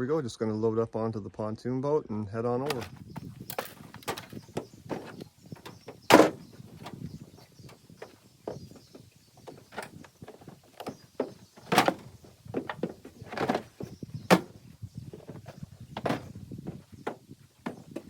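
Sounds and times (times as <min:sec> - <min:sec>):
knocks and thuds of tools: 0:02.7 - 0:07.0, 0:08.0 - 0:14.6, 0:15.2 - 0:18.0
loud bangs: 0:06.1 - 0:06.5.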